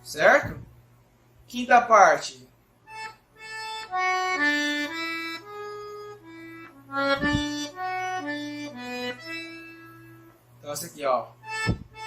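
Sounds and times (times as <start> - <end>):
accordion melody: 2.8 - 12.0
low bass thump: 6.9 - 7.7, 11.5 - 12.0.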